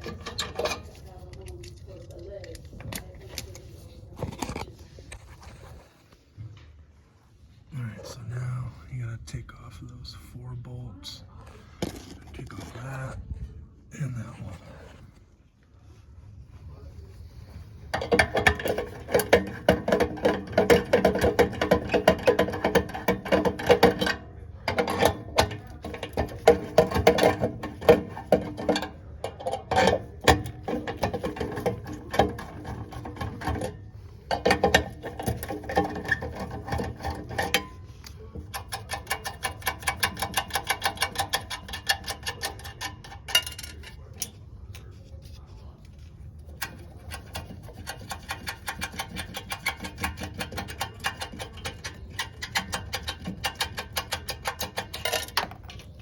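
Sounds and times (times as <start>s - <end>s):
rapid mechanical clicking: 34.3s - 44.4s, 46.4s - 56.0s.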